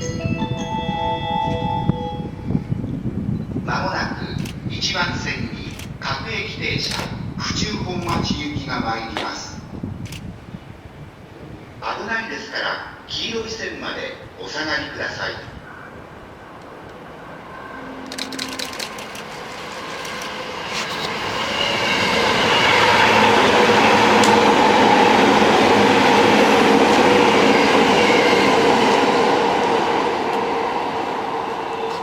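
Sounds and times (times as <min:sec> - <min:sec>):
electric train running on rails: 0:00.0 - 0:08.6, 0:16.0 - 0:32.0.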